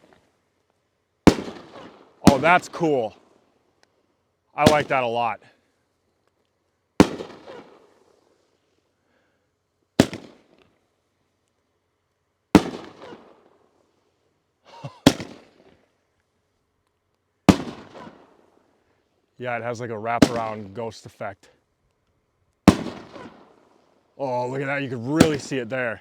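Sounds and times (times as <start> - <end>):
firework booms: 1.3 - 2.9, 4.6 - 5.2, 7.0 - 7.8, 14.9 - 15.5, 22.7 - 23.5.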